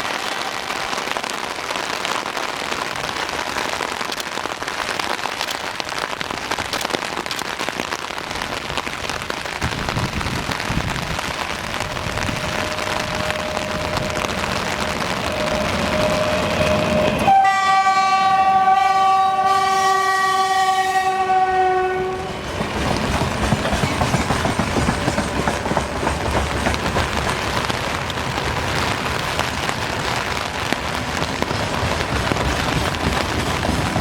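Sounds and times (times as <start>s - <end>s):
freight train rumble and wheel clatter: 9.6s - 34.0s
locomotive horn blast: 11.9s - 22.4s.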